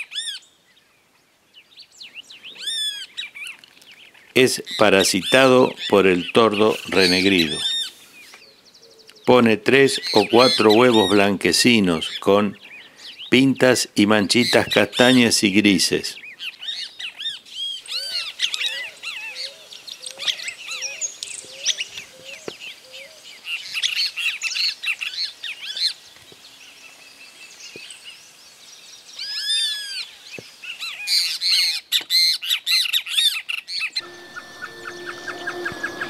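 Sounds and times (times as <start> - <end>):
birds chirping: 0.0 - 32.3, 33.3 - 36.0
low rising bird notes: 34.0 - 36.0
steady high whistle: 34.0 - 36.0.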